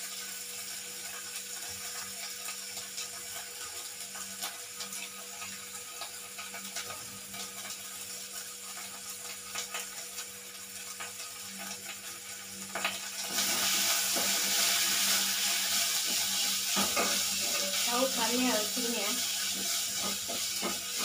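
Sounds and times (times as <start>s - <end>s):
onions sizzling in a pan: 0.0s - 21.0s
metal spoon stirring pan: 14.0s - 21.0s.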